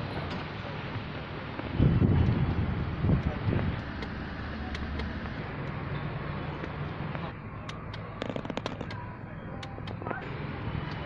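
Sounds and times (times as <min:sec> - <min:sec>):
sharp cracks or clicks: 0:07.6 - 0:09.0.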